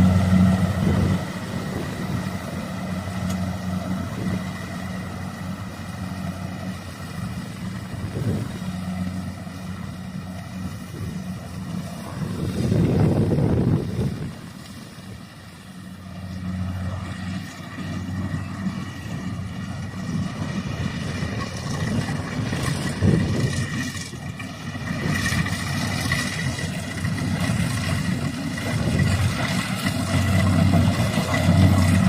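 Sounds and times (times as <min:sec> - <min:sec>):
combine harvester engine running: 0:00.0 - 0:32.0.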